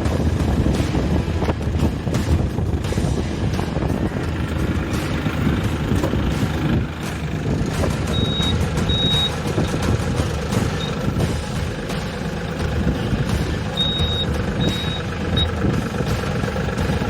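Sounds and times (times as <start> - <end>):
tractor engine running: 0.0 - 17.0
short high beeps: 8.1 - 9.4, 13.8 - 15.5.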